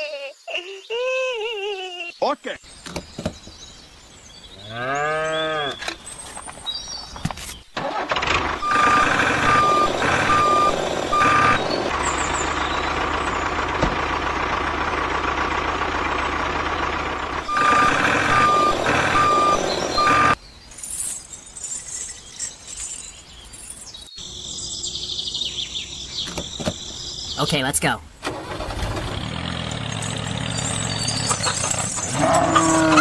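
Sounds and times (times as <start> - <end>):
truck engine running: 7.8 - 20.4, 28.2 - 33.0
reversing alarm beeping: 8.6 - 11.8, 17.4 - 20.4.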